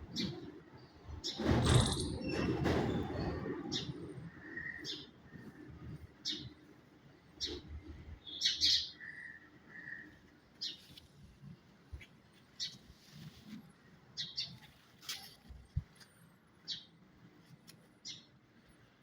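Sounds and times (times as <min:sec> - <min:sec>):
small birds chirping: 0:03.7 - 0:19.0.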